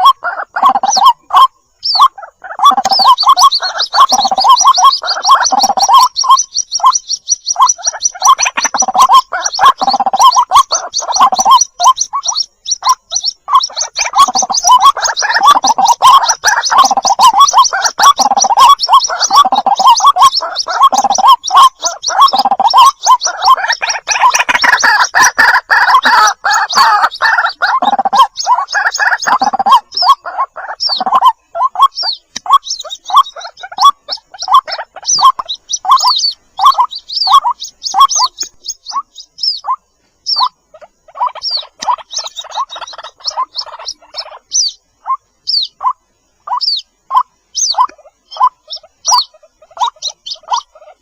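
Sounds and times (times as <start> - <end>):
bird chicks calling: 0.0 - 51.0.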